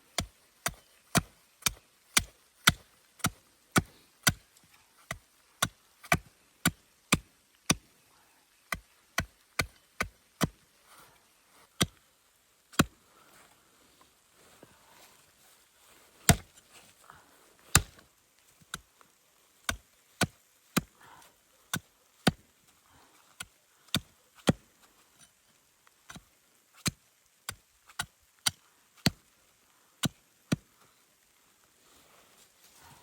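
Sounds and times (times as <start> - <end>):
wood being chopped: 12.7 - 12.9, 16.2 - 16.5, 17.7 - 18.0.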